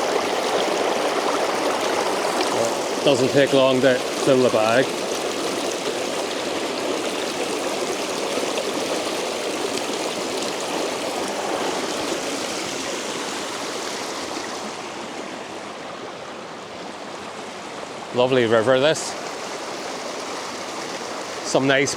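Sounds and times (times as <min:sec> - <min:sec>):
river rushing over rocks: 0:00.0 - 0:21.9.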